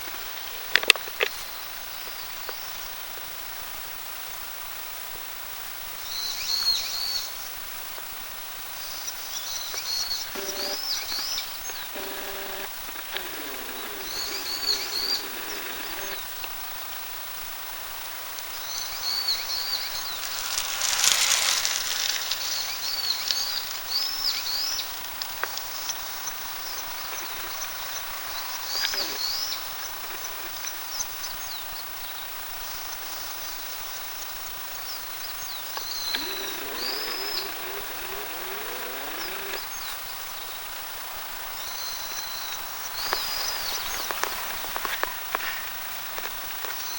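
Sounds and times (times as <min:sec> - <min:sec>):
buzzard alarm call: 0:10.2 - 0:10.9, 0:11.6 - 0:16.2, 0:35.8 - 0:39.6.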